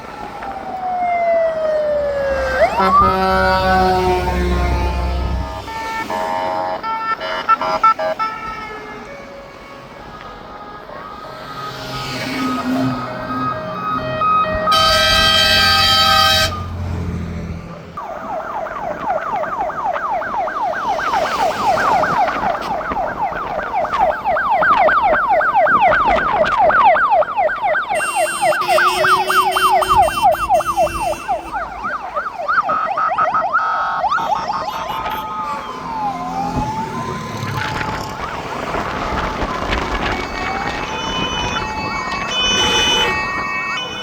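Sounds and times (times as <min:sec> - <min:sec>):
siren yelping: 0:00.0 - 0:06.2, 0:10.8 - 0:16.8, 0:18.0 - 0:44.0
fire engine air horn: 0:02.3 - 0:17.0, 0:27.8 - 0:32.4, 0:34.0 - 0:35.7, 0:38.7 - 0:44.0.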